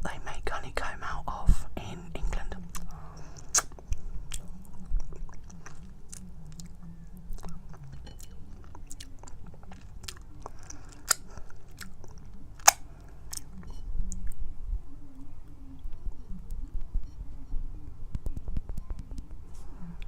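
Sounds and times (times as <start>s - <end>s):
wet chewing with smacking clicks: 2.7s - 14.4s.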